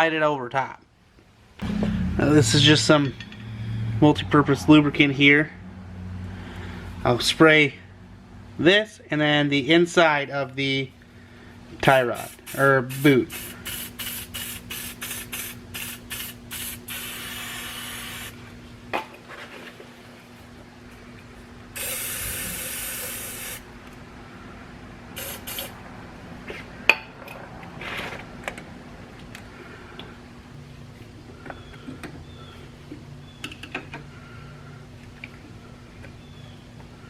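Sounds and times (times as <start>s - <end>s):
aerosol can spraying: 12.2s - 18.4s, 21.8s - 23.6s, 25.2s - 25.8s.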